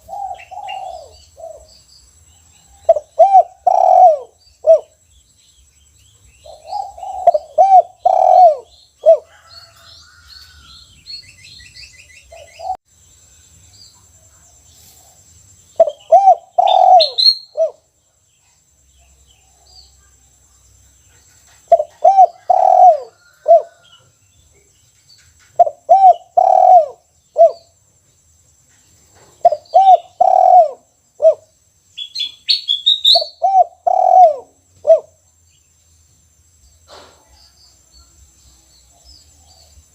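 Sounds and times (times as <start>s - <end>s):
dove cooing: 0.0s - 1.7s, 2.8s - 5.0s, 6.4s - 9.9s, 15.8s - 17.9s, 21.6s - 23.9s, 25.6s - 27.7s, 29.4s - 31.5s, 33.1s - 35.2s
small birds chirping: 0.0s - 39.9s.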